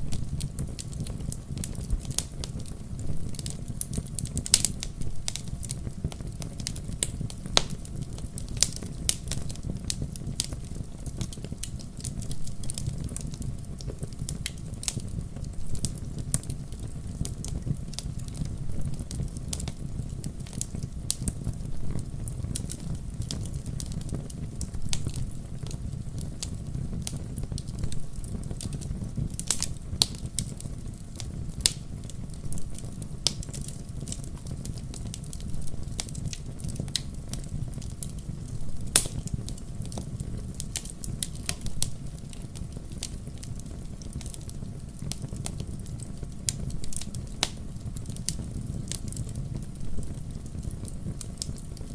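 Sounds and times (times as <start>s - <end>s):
sharp pops of fire: 0.0s - 51.9s
wood fire crackling: 0.0s - 51.9s.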